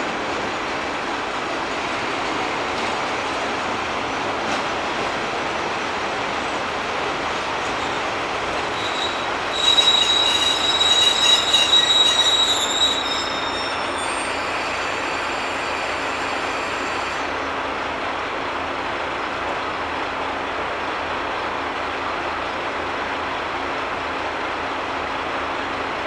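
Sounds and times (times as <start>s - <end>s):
train running: 0.0s - 26.0s
wheel and brake squeal: 7.6s - 17.3s.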